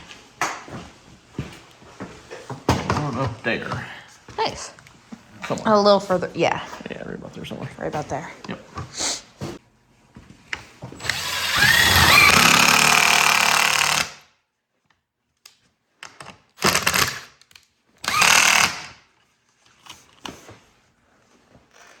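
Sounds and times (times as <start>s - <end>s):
cordless drill driving screws: 11.0s - 14.2s, 16.6s - 17.3s, 18.0s - 19.0s.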